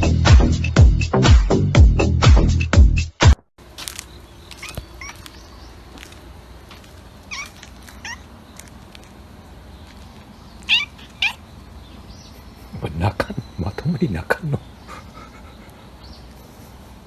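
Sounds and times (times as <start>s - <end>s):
cat meowing: 4.6s - 5.3s, 7.2s - 8.3s, 10.6s - 11.5s.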